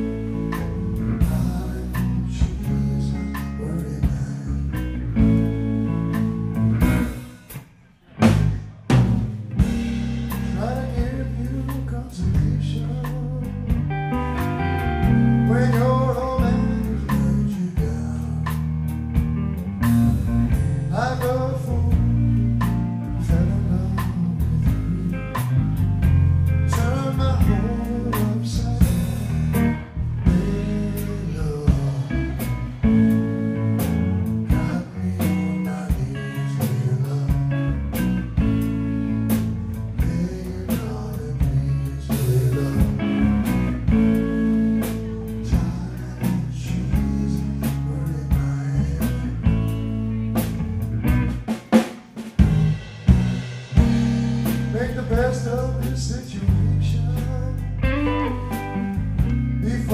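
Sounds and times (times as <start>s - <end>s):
bass guitar: 0.0s - 59.9s
steady drum beat: 0.0s - 59.9s
electric guitar lead with sliding notes: 4.3s - 7.4s, 13.5s - 17.4s, 18.8s - 40.4s, 42.6s - 47.9s, 52.4s - 59.9s.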